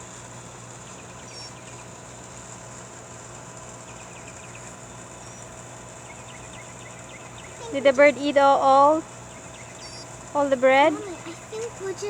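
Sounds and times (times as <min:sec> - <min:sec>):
high insect drone: 0:00.0 - 0:12.0
low hum: 0:00.0 - 0:12.0
faint bird chirps: 0:00.8 - 0:01.8, 0:03.9 - 0:08.0, 0:09.3 - 0:10.2.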